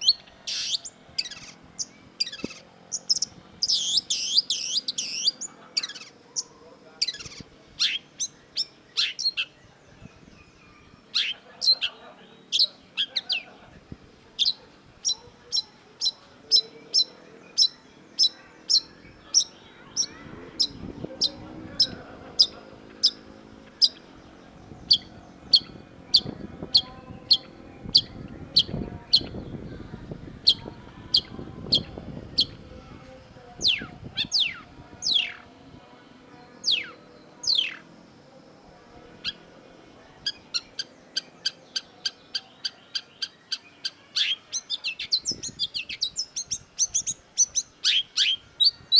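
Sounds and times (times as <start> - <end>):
bird singing sharp notes: 0.0 - 9.6
faint low murmur: 0.0 - 48.9.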